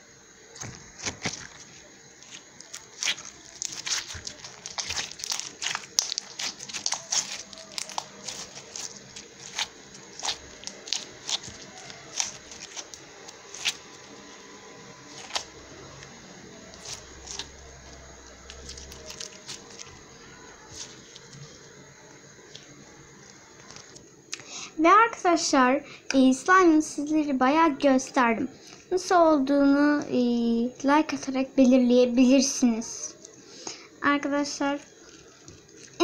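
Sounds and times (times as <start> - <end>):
crunchy slime crackling: 0.5 - 24.4, 34.3 - 36.0.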